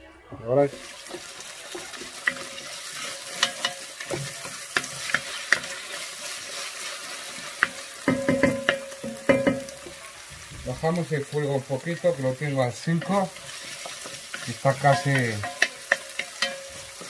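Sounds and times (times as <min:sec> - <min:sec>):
vegetables sizzling in a pot: 0:00.5 - 0:17.0
utensil knocking against pot: 0:08.0 - 0:09.8, 0:14.9 - 0:16.8.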